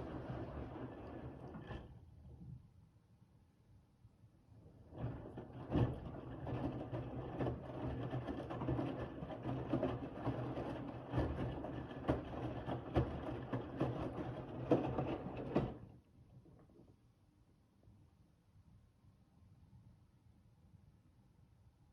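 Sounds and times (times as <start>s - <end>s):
washing machine motor humming: 0.0s - 1.8s.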